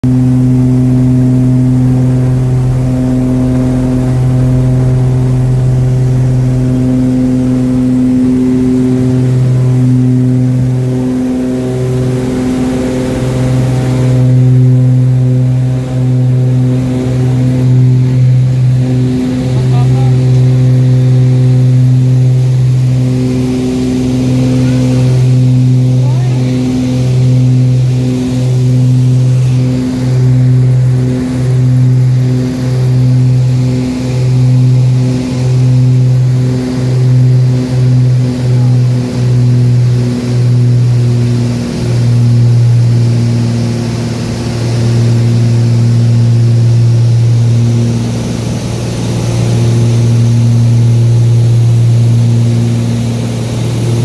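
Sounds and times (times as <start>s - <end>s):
propeller aircraft engines droning: 0.0s - 54.0s.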